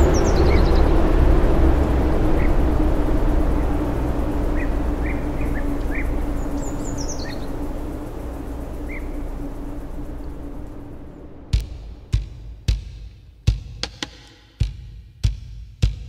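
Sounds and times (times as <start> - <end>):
bird twittering: 0.0 - 10.8
small birds chirping: 0.0 - 12.1
low rumbling background: 0.0 - 13.2.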